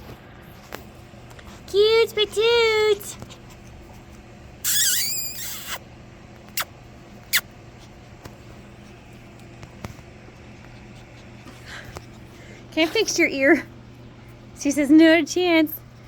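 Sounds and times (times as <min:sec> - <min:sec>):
puppy squealing: 0:04.6 - 0:05.8.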